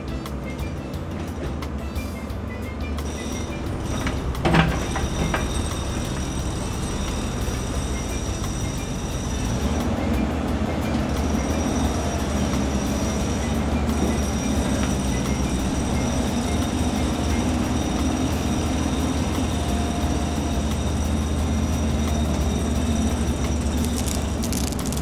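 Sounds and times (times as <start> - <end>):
heavy machinery rumbling: 0.0 - 25.0.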